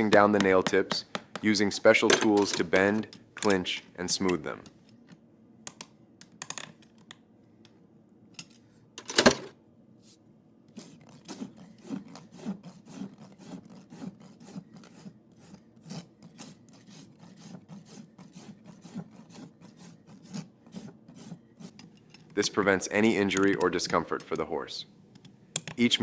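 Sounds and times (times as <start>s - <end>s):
rasp filing a hoof: 10.8s - 21.8s.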